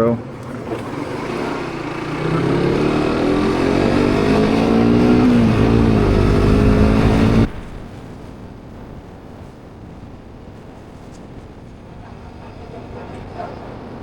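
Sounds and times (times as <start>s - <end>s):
motorbike engine under throttle: 0.0s - 7.8s
road and wind noise: 0.0s - 14.0s.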